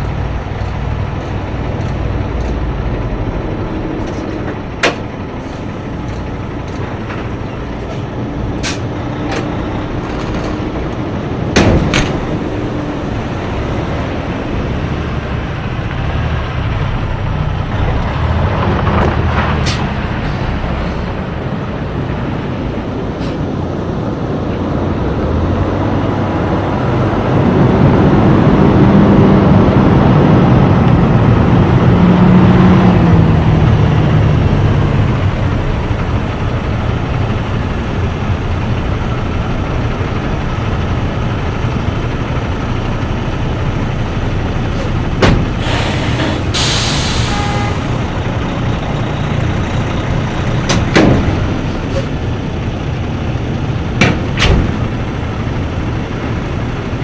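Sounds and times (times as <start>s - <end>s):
diesel truck engine: 0.0s - 57.0s
road noise: 0.0s - 57.0s
air hiss: 44.7s - 48.1s.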